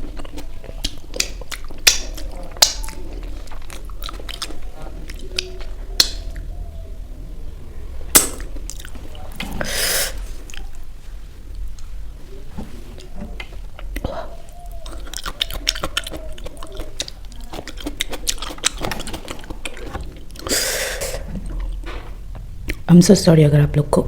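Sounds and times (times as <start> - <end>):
person chewing: 0.0 - 6.9, 8.1 - 22.9
mouth or utensil clicks: 0.8 - 2.9.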